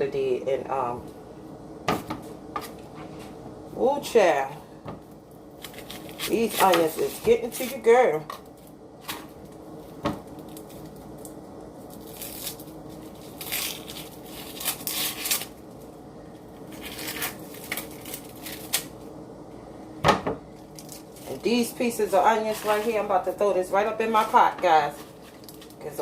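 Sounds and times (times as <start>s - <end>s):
onion pieces crackling: 5.5s - 19.0s, 20.5s - 26.0s.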